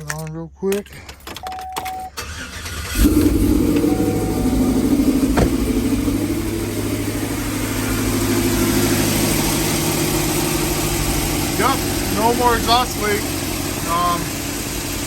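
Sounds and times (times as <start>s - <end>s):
engine idling: 2.2s - 15.0s.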